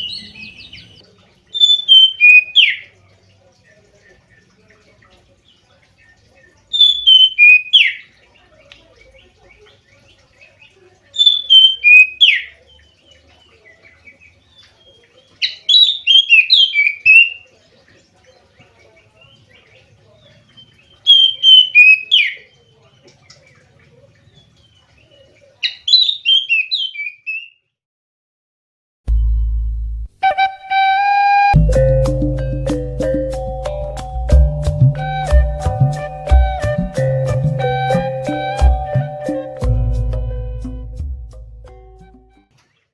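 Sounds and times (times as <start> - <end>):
bird singing whistled phrases: 0.0 - 2.9, 6.7 - 8.0, 11.2 - 12.5, 14.8 - 17.4, 20.5 - 22.5, 25.6 - 27.6
faint bird chirps: 0.0 - 27.7.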